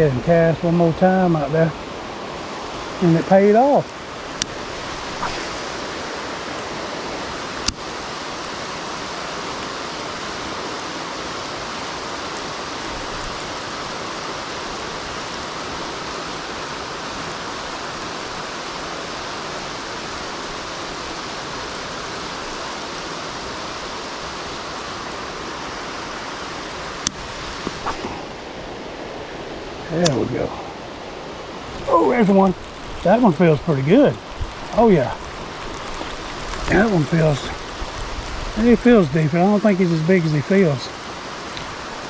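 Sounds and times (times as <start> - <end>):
heavy rain pouring: 0.0 - 42.0.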